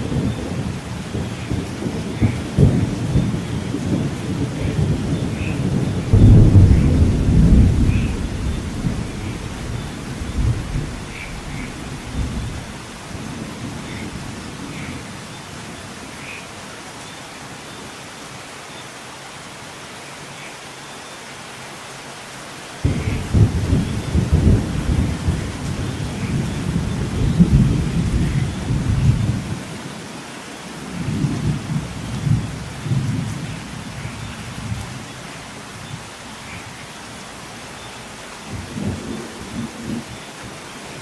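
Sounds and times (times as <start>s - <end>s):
thunder rumbling: 0.0s - 15.2s, 22.8s - 29.8s, 30.9s - 36.6s
steady rain: 0.0s - 41.0s.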